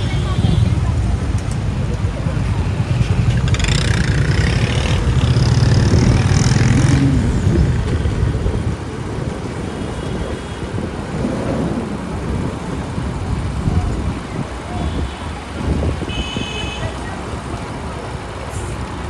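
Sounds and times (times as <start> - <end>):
motorbike engine running: 0.0 - 8.4
street traffic: 0.0 - 19.0.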